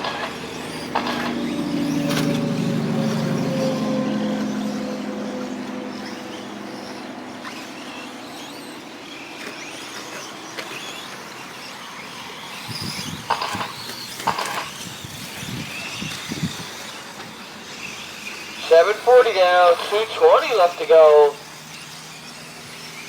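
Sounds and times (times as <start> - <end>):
rc truck motors whining: 0.0 - 23.0
track noise: 18.6 - 21.4.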